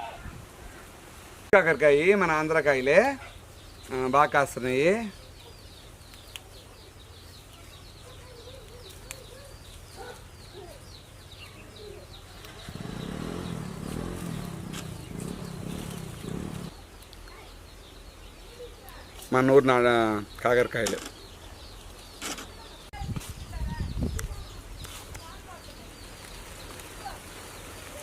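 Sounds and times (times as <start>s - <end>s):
small birds chirping: 1.7s - 28.0s
low hum: 12.5s - 16.7s.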